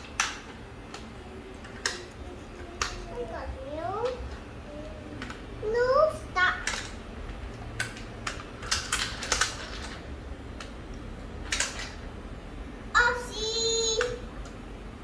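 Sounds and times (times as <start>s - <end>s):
plastic toy cars clicking: 0.1s - 1.0s, 1.6s - 3.2s, 6.5s - 7.0s, 7.8s - 10.0s, 11.5s - 12.0s, 14.0s - 14.2s.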